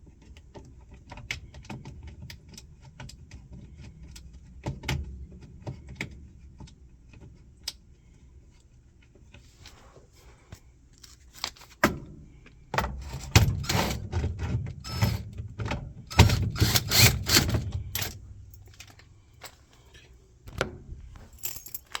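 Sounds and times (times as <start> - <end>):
metal parts clattering and rattling: 16.1 - 20.1, 21.1 - 22.0.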